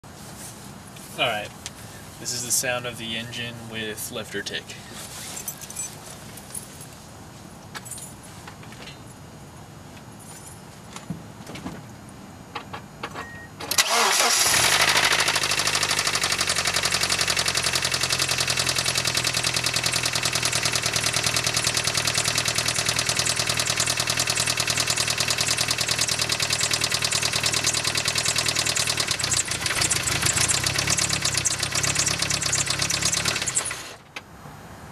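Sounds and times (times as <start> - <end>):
engine cranking: 13.6 - 34.0
car engine idling with ticking: 13.8 - 34.1.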